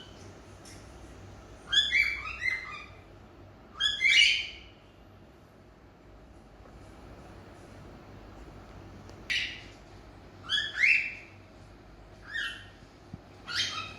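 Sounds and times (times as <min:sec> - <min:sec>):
cockatiels chirping: 0:01.6 - 0:03.1, 0:03.7 - 0:04.8, 0:09.3 - 0:09.7, 0:10.4 - 0:11.4, 0:12.2 - 0:12.8, 0:13.4 - 0:13.9.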